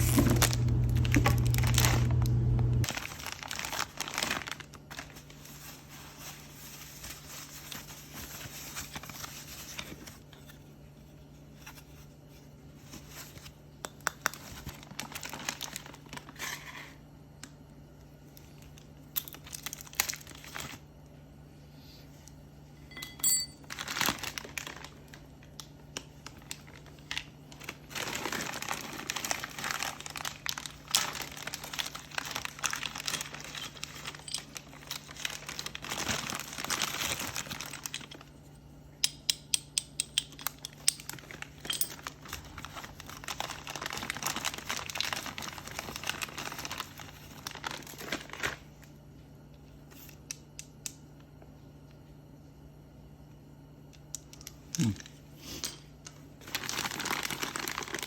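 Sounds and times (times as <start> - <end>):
plastic packaging crinkling: 0.0 - 10.2, 14.1 - 16.5, 18.5 - 20.9, 23.6 - 38.4, 40.4 - 48.9, 56.4 - 58.0.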